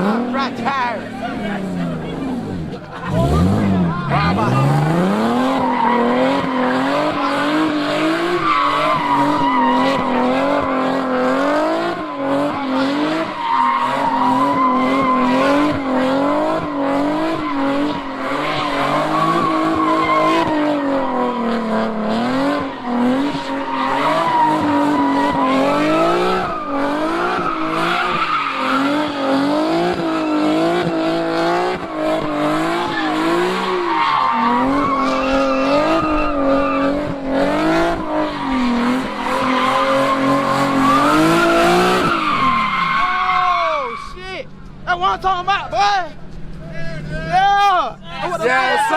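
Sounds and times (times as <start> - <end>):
car engine at high revs: 0.0 - 43.6
tires squealing and skidding: 0.0 - 48.9.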